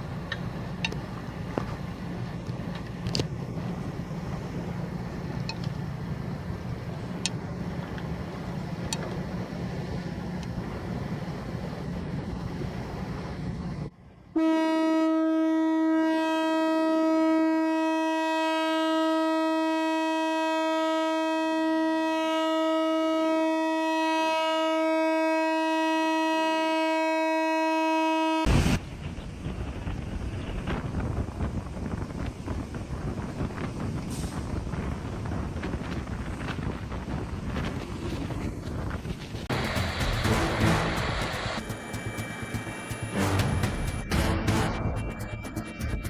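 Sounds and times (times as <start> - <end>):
boat horn long blast: 14.3 - 28.5, 40.2 - 41.2
wind rumble: 28.5 - 44.2
engine noise: 37.6 - 46.0.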